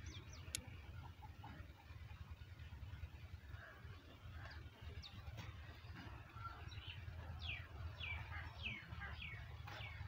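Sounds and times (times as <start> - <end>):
small bird chirping: 0.0 - 2.3
low steady rumble: 0.0 - 10.0.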